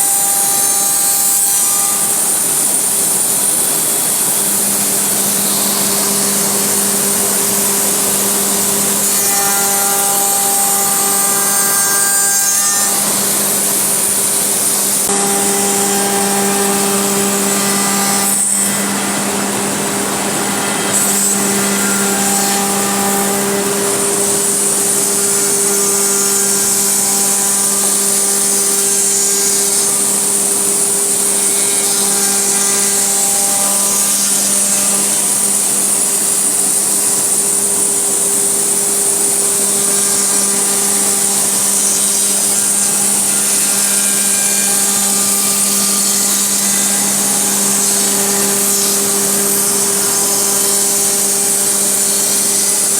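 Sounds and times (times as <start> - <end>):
router bit cutting wood: 0.0 - 52.9
router spindle whine: 0.0 - 52.9.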